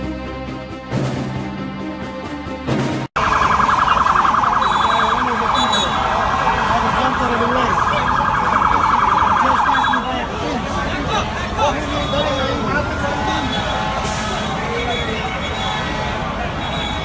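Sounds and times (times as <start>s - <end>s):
street noise: 0.0s - 17.0s
siren yelp: 3.2s - 10.3s
voices: 3.3s - 17.0s.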